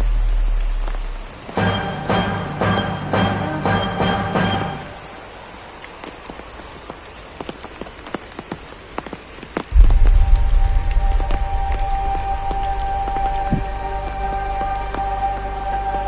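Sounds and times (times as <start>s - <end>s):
loud low rumble: 0.0s - 1.5s, 9.7s - 15.2s
raindrops ticking: 0.0s - 16.0s
steady rain falling: 0.0s - 16.0s.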